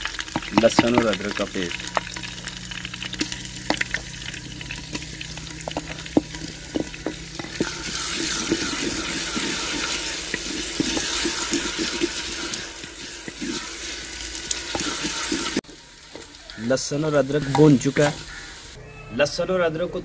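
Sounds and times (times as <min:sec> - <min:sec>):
paste sizzling in hot oil: 0:00.0 - 0:18.8
wooden spoon scraping pot: 0:02.8 - 0:16.4.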